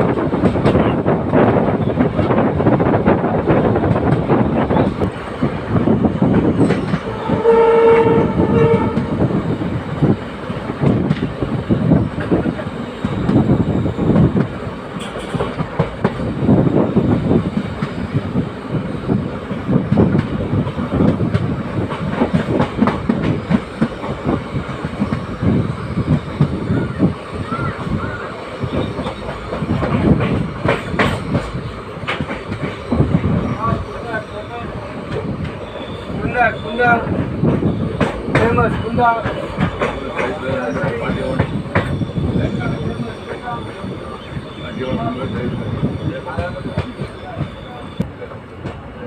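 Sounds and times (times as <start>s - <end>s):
train wheels rattling over rails: 0.0s - 49.0s
locomotive horn: 7.0s - 9.2s.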